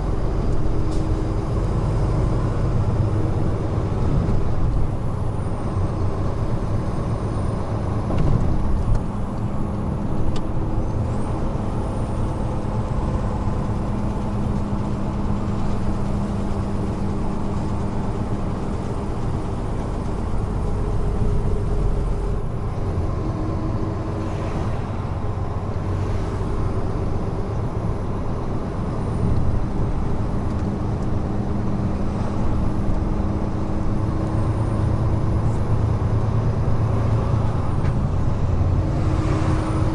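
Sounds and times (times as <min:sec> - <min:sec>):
road and tyre noise: 0:00.0 - 0:39.9
truck diesel engine running: 0:00.0 - 0:39.9.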